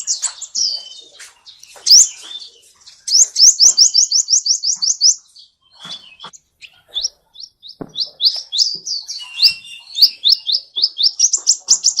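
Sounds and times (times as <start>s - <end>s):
finches chirping: 0.0s - 12.0s
soft knocks: 7.8s - 8.1s.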